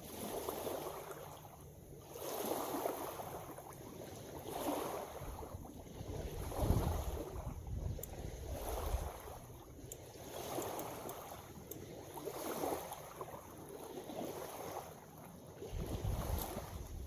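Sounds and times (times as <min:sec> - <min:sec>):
small waves lapping: 0:00.0 - 0:17.0
wind rumble on microphone: 0:04.4 - 0:09.7, 0:15.6 - 0:17.0.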